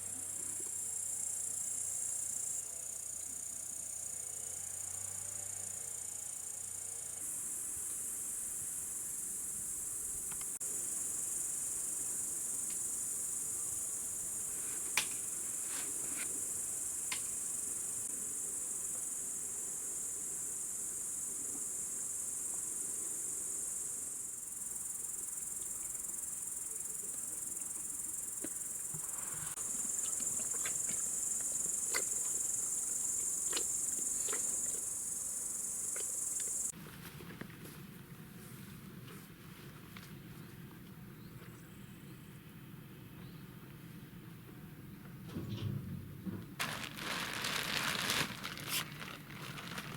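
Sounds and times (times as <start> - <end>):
shrill insect chorus: 16.4 - 36.7.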